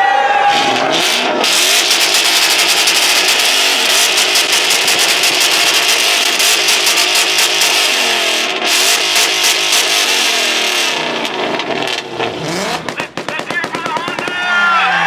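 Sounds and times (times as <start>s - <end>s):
car engine revving: 0.4s - 15.0s.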